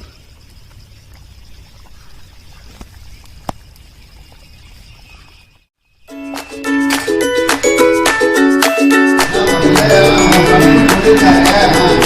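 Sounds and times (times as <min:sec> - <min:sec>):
music: 0:06.1 - 0:12.0.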